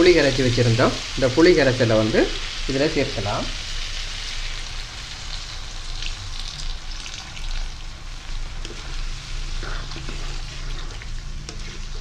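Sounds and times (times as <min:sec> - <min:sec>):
vegetables sizzling in a wok: 0:00.0 - 0:12.0
spatula stirring and scraping: 0:07.2 - 0:12.0.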